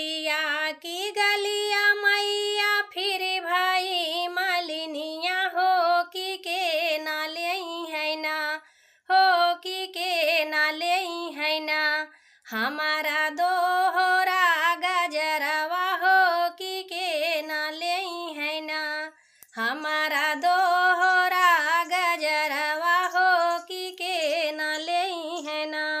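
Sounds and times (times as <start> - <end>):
woman singing folk song: 0.0 - 26.0.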